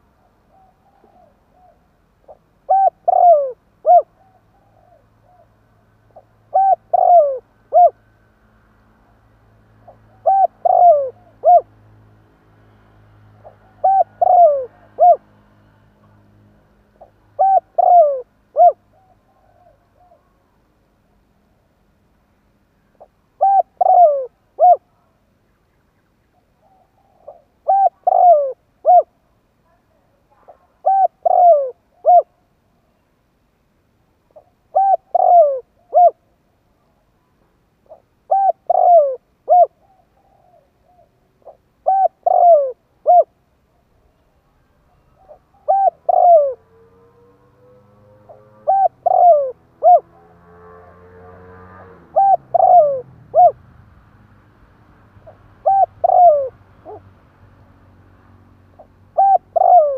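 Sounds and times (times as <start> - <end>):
dove cooing: 0.0 - 8.0, 9.8 - 11.8, 13.4 - 15.4, 17.0 - 20.5, 23.0 - 25.1, 26.6 - 29.2, 30.4 - 32.4, 34.3 - 36.2, 37.8 - 43.4, 44.9 - 53.6, 55.2 - 57.1, 58.8 - 59.9
faint rising hum: 42.8 - 59.9.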